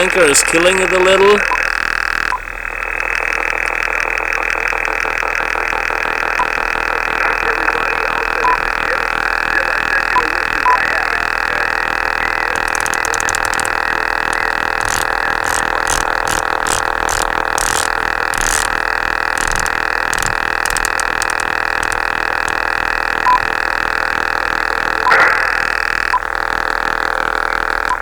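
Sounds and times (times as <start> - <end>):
radar interference noise on radio: 0.0 - 28.0
short radio blip: 25.0 - 26.2.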